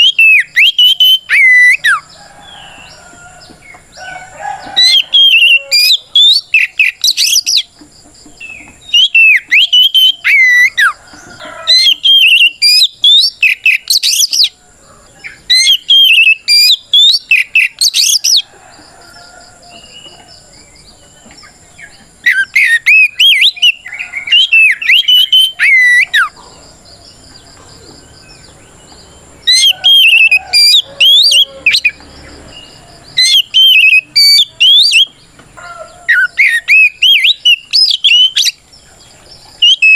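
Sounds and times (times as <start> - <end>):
bird singing sharp whistles: 0.0 - 1.8, 8.4 - 10.8, 15.6 - 18.2, 22.3 - 26.1, 33.2 - 35.1, 36.2 - 38.6, 39.6 - 39.9.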